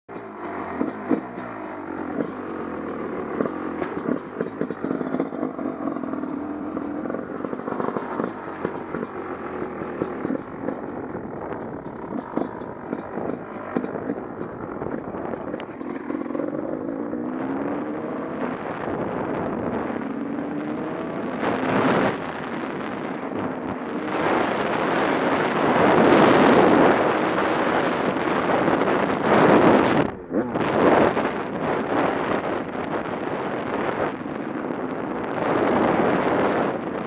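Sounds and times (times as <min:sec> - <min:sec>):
motorcycle engine revving: 0:00.1 - 0:37.0
wind on microphone: 0:00.7 - 0:37.0.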